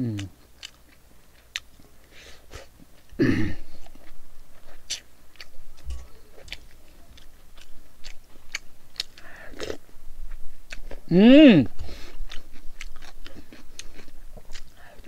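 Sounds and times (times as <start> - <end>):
person chewing noodles: 0.0 - 15.0.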